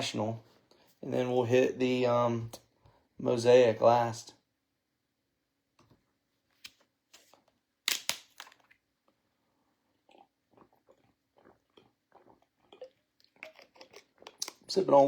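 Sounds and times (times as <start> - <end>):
plastic bottle clicks and crackle: 6.6 - 8.8
person swallowing gulps: 9.9 - 14.7.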